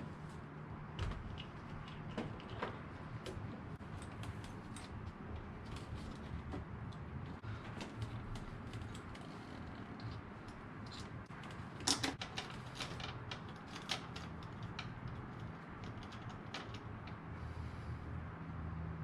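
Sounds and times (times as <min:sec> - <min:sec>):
plastic and metal parts clicking: 0:07.7 - 0:17.2.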